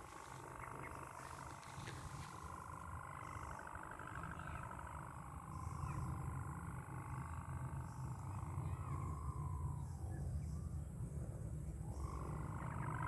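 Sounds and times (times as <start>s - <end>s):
wavering hum: 0.0s - 13.0s.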